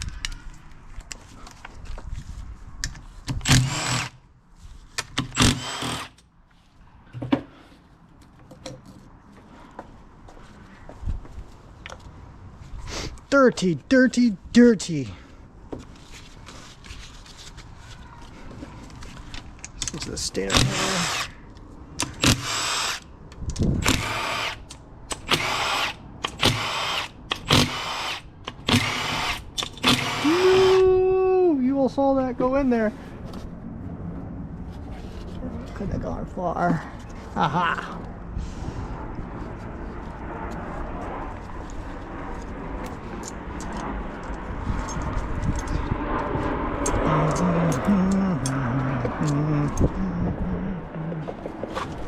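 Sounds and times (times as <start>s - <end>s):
handheld power tool running: 3.4s - 4.2s, 5.3s - 6.1s, 20.5s - 21.3s, 22.2s - 23.0s, 23.8s - 24.6s, 25.2s - 30.8s.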